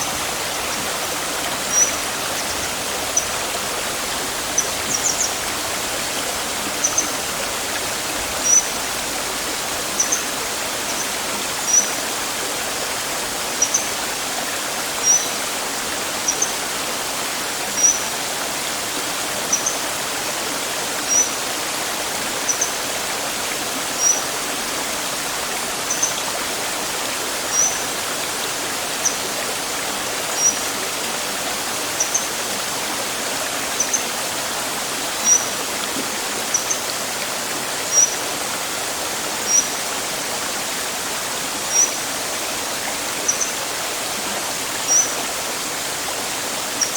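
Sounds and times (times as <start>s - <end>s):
rushing water: 0.0s - 46.9s
bird chirping: 1.7s - 2.6s, 4.6s - 5.4s, 6.8s - 7.2s.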